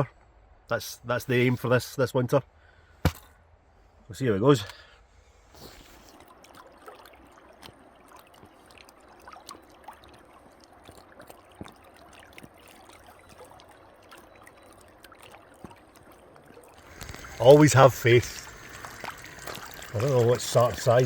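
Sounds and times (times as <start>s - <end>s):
river water trickling: 4.6s - 21.0s.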